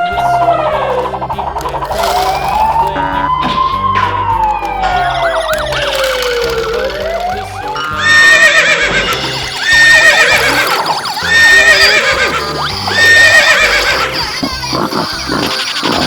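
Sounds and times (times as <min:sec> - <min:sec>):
background music: 0:00.0 - 0:16.0
horse whinny: 0:05.0 - 0:16.0.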